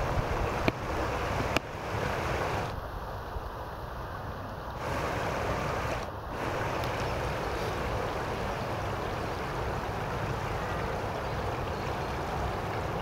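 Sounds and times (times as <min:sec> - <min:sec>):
wind buffeting microphone: 0:00.0 - 0:02.7
river rushing: 0:00.0 - 0:13.0.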